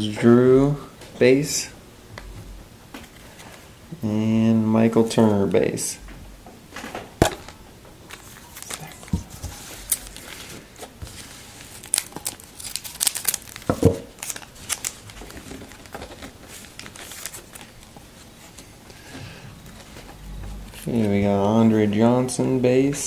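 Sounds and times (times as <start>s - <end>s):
card pack wrapper crinkling: 7.3s - 18.2s.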